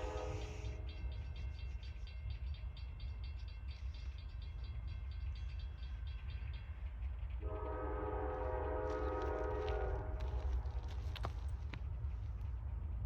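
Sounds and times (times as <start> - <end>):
locomotive horn: 0.0 - 0.9, 7.4 - 11.0
freight train rumble: 0.0 - 13.0.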